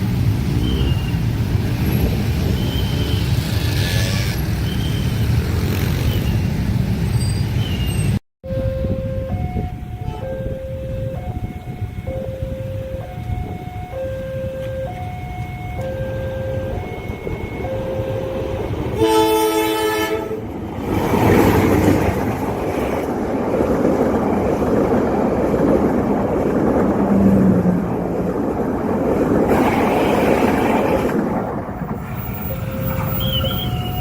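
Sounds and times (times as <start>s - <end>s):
level crossing alarm tones: 8.4s - 19.1s, 32.1s - 34.0s
train rushing past: 16.6s - 34.0s
train horn blast: 18.2s - 20.5s.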